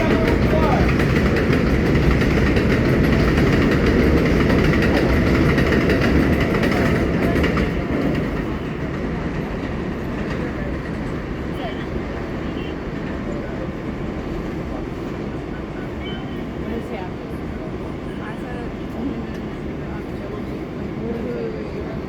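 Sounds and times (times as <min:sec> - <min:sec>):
rail clatter: 0:00.0 - 0:15.9
subway train rumble: 0:00.0 - 0:22.0.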